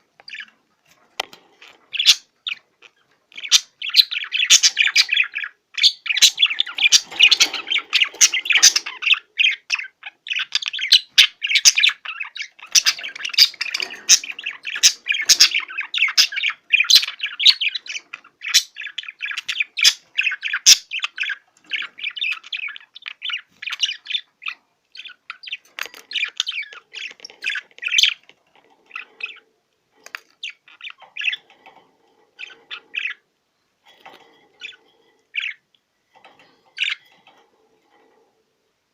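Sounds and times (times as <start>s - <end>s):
budgerigar warbling and chattering: 1.7s - 28.3s.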